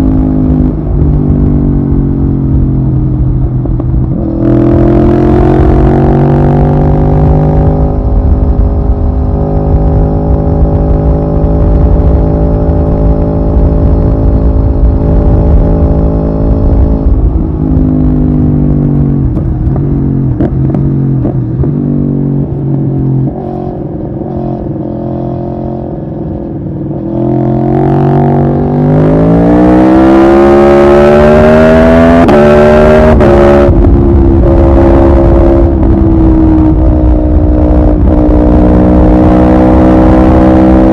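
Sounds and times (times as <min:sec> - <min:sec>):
motorcycle engine revving: 0:00.0 - 0:40.9
wind rumble: 0:00.0 - 0:40.9.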